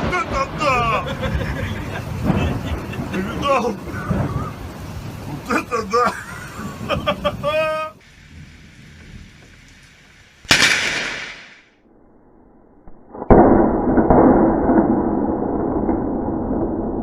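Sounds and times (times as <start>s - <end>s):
sharp thunderclap: 0.0s - 7.5s, 8.1s - 11.7s
loud steady noise: 0.0s - 11.7s.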